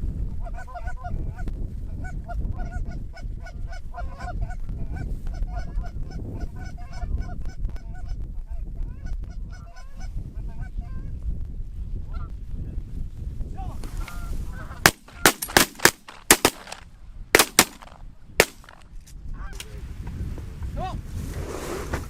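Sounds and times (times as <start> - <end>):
wind rumble on microphone: 0.0 - 22.0
shotgun shots: 14.8 - 16.8, 17.4 - 18.8.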